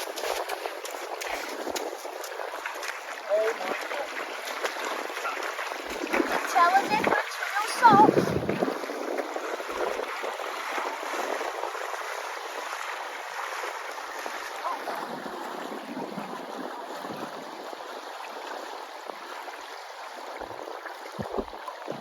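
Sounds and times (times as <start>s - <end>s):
water washing at seashore: 0.0s - 22.0s.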